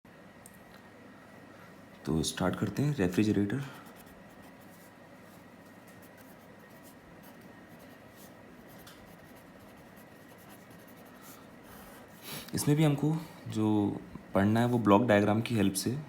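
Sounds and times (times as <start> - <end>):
low steady background hiss: 0.1 - 16.0
handwriting scratching: 3.8 - 12.4.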